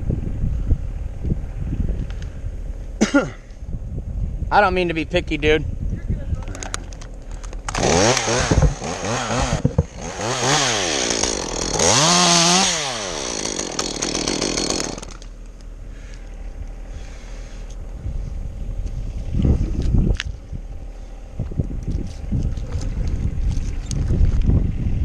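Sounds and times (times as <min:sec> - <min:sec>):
chainsaw revving: 0:07.7 - 0:15.3.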